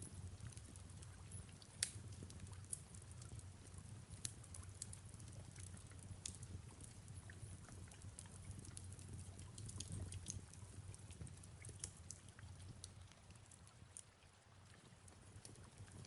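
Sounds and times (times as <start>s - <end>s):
fire crackling and popping: 0.0s - 16.0s.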